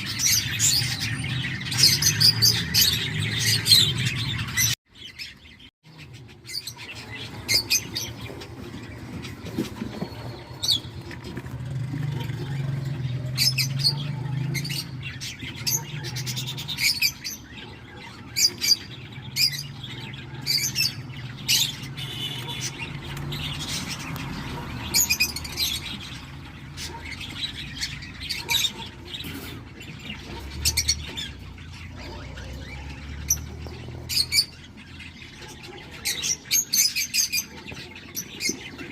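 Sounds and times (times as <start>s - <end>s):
bird chicks chirping: 0.0s - 38.9s.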